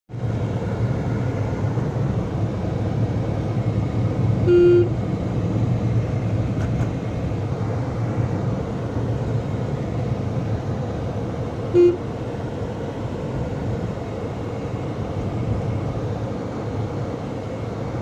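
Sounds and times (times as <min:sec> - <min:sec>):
car driving on road: 0:00.1 - 0:18.0
car horn toot: 0:04.4 - 0:05.0, 0:11.7 - 0:12.1.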